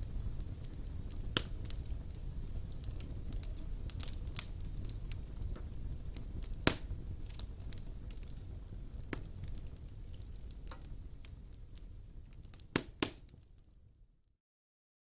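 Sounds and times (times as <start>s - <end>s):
fire flames rumbling: 0.0s - 14.3s
small fire crackles: 0.0s - 14.4s
loud fire pop: 1.1s - 1.8s, 6.4s - 7.4s, 12.7s - 13.4s.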